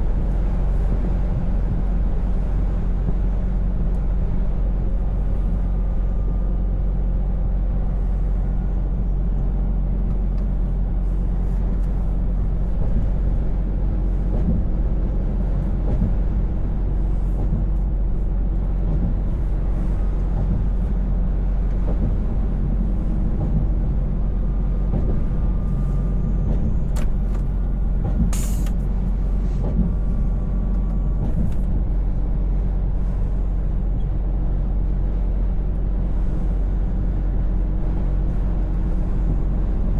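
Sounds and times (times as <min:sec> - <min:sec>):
road noise: 0:00.0 - 0:39.9
truck engine running: 0:00.0 - 0:39.9
short sharp hiss: 0:28.3 - 0:28.8.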